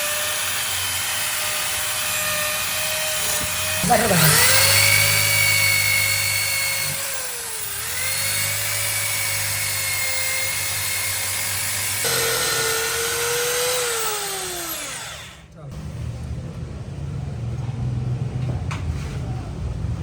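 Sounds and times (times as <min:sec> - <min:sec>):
power tool motor whining: 0:00.0 - 0:15.5.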